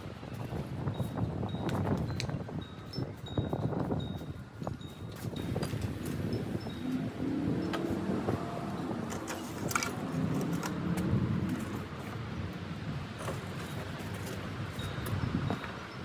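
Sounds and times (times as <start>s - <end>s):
vehicle engine running: 5.4s - 14.4s.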